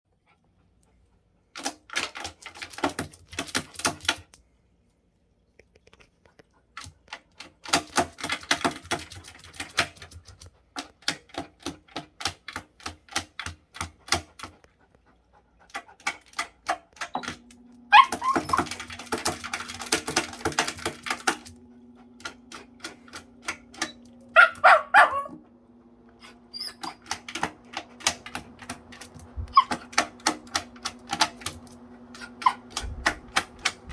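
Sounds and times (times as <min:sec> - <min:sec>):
dog claws clicking: 0:01.6 - 0:04.4, 0:05.8 - 0:14.9, 0:15.6 - 0:17.1
electric fan humming: 0:16.9 - 0:33.9
dog yelping: 0:17.9 - 0:19.8, 0:23.8 - 0:25.5, 0:26.2 - 0:27.3, 0:29.4 - 0:30.1, 0:32.2 - 0:32.8.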